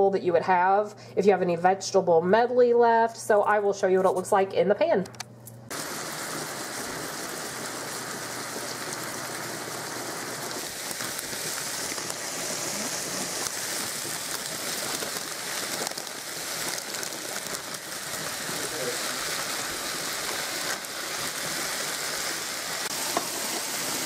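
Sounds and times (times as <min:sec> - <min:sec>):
chicken sizzling in skillet: 0:05.7 - 0:24.0.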